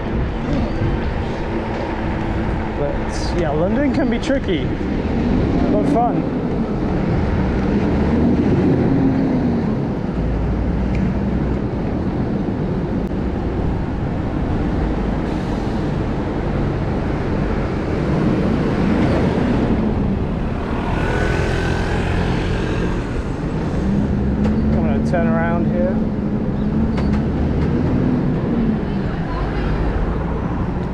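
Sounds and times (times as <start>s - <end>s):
wind on microphone: 0.0s - 4.0s
road traffic rumble: 0.0s - 30.9s.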